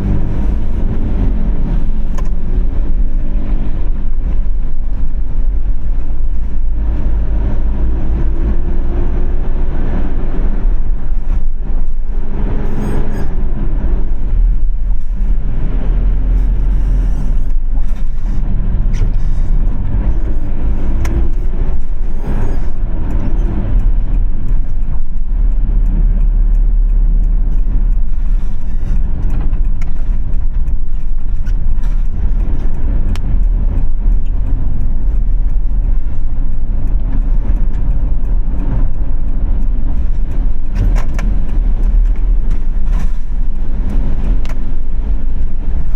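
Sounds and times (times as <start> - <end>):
car engine and tyres rumbling: 0.0 - 45.9
nearby vehicle engines: 0.0 - 45.9.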